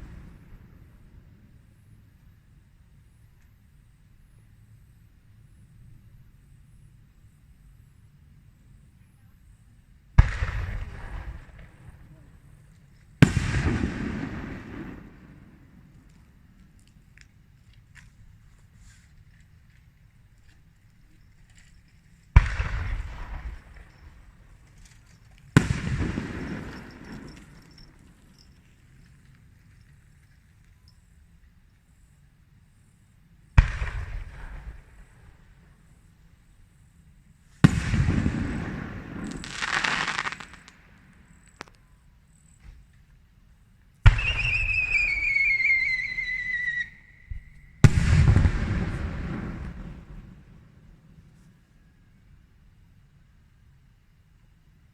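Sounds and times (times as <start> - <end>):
firework bangs with rumble: 10.2 - 12.0, 13.2 - 15.6, 22.4 - 24.1, 25.6 - 27.8, 33.6 - 35.1, 37.6 - 40.8, 44.1 - 50.3
descending firework whistle: 44.1 - 50.0.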